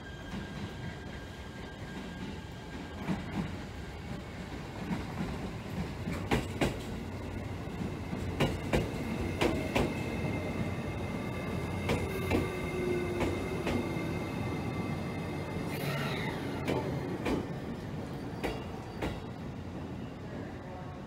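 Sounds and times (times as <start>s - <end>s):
train low rumble: 0.0s - 21.0s
train wheels clicking over rail joints: 4.8s - 7.0s, 8.3s - 10.0s, 11.8s - 13.9s, 16.6s - 17.5s.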